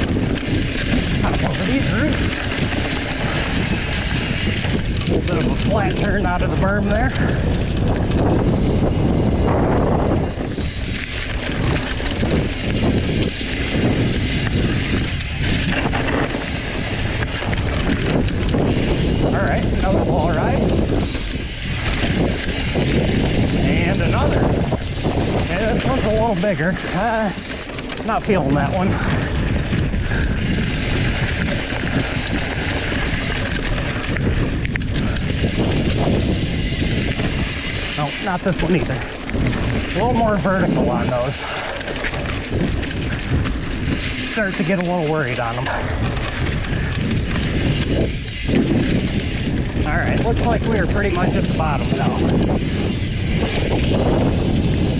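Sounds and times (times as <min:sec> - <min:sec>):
bike rattling over bumps: 0:00.0 - 0:54.9
bike tyres rolling on dirt: 0:00.0 - 0:54.9
wind rushing over microphone: 0:00.0 - 0:54.9
sharp clicks: 0:09.7 - 0:40.2.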